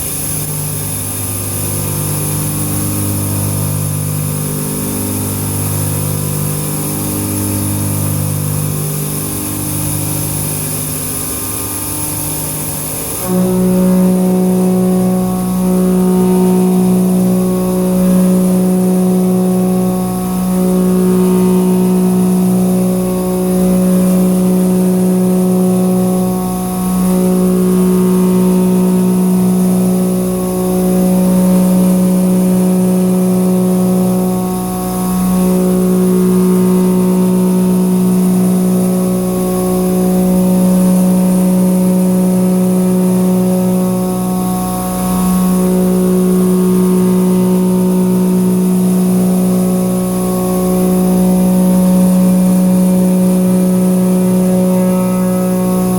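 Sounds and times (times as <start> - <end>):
cooling air blast hiss: 0.0 - 55.9.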